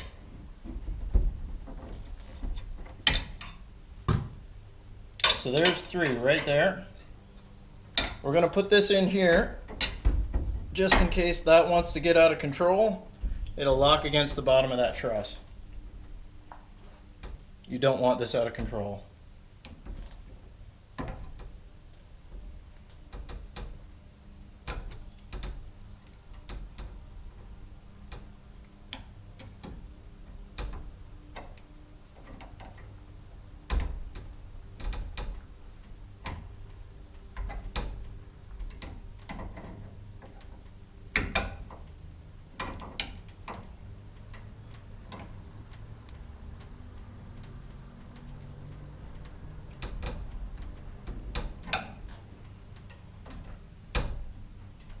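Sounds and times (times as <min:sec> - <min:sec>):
hand tools clicking and knocking: 0:05.2 - 0:07.1.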